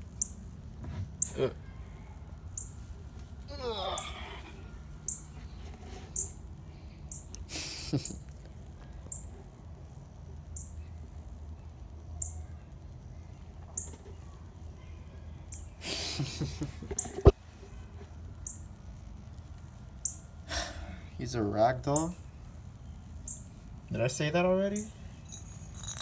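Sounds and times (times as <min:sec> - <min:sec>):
small bird chirping: 0:00.1 - 0:00.5, 0:02.0 - 0:02.9, 0:05.0 - 0:05.5, 0:06.1 - 0:09.4, 0:10.5 - 0:11.0, 0:11.6 - 0:12.6, 0:13.7 - 0:14.2, 0:14.8 - 0:15.8, 0:18.4 - 0:18.8, 0:20.0 - 0:20.4, 0:21.8 - 0:23.8
rustling handling noise: 0:25.1 - 0:26.0.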